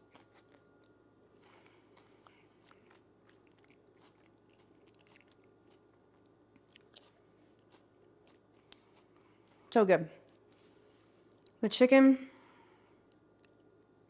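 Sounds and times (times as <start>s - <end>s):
person chewing: 0.0s - 9.7s.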